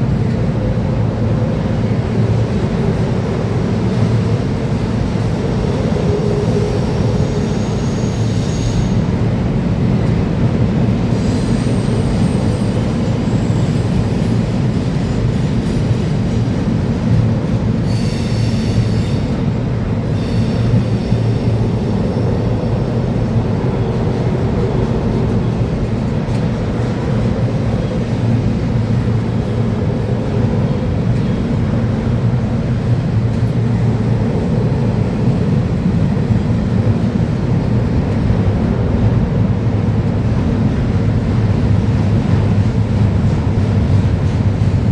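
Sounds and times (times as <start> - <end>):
train wheels rumbling on rail: 0.0 - 44.9
high wheel squeals: 0.3 - 9.1, 11.1 - 26.2.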